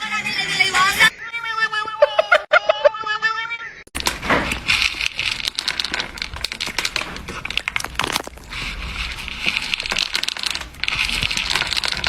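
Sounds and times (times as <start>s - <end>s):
crinkling and crackling clicks: 3.9s - 12.0s.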